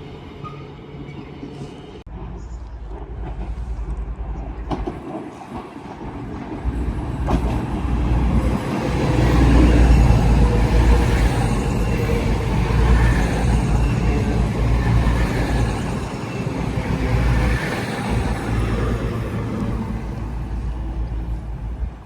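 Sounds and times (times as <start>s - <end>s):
train passing: 0.0s - 22.0s.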